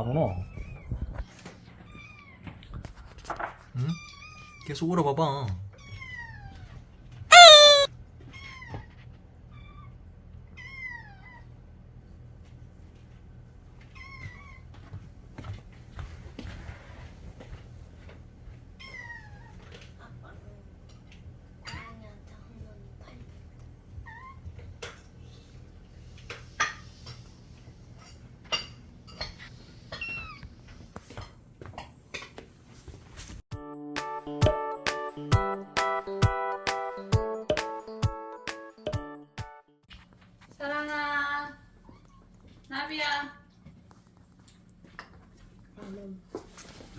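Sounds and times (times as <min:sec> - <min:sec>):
cat meowing: 0:05.8 - 0:08.9.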